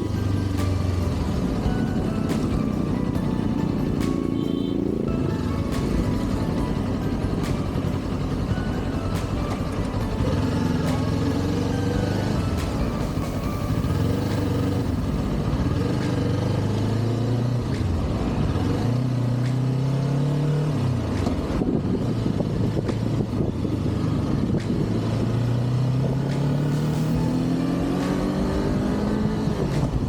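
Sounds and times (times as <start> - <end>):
motorcycle engine accelerating: 0.0 - 30.0
wind noise on microphone: 21.0 - 30.0.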